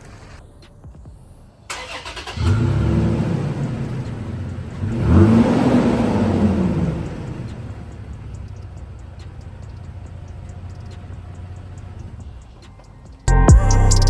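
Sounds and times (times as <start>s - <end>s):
engine cranking and idling: 0.0s - 0.5s, 1.7s - 13.3s
engine revving: 1.7s - 12.9s.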